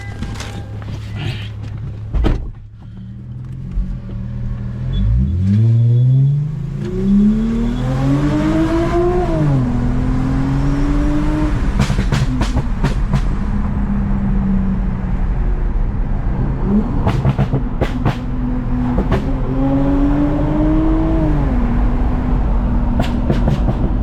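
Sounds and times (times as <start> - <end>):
car engine accelerating: 2.8 - 24.0.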